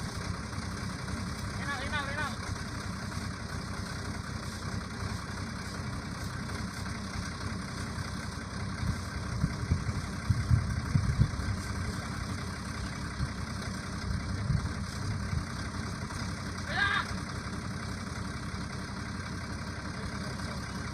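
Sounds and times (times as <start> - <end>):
truck engine running: 0.0 - 20.9.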